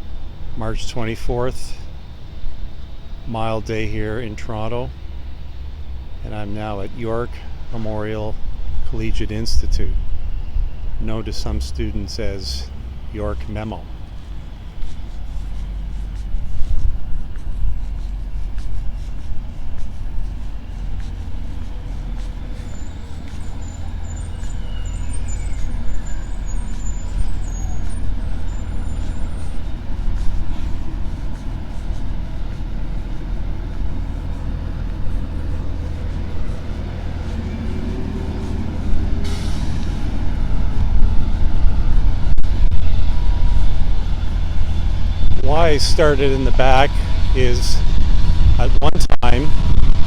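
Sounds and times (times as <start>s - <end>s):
heavy vehicle engine rumble: 0.0s - 50.0s
short hiss: 39.2s - 40.2s.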